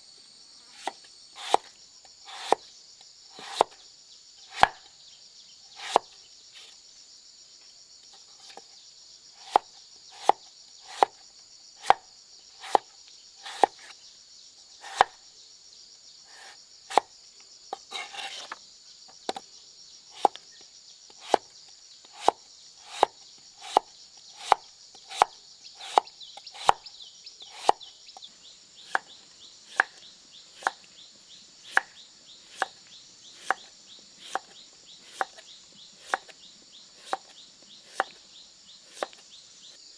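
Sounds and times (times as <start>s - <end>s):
high insect drone: 0.0s - 39.9s
blade chopping: 0.6s - 1.7s, 29.7s - 30.0s, 36.0s - 36.3s, 38.9s - 39.2s.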